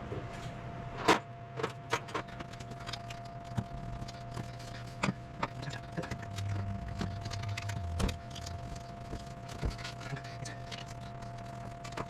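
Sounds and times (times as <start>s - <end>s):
faint steady hum: 2.4s - 12.0s.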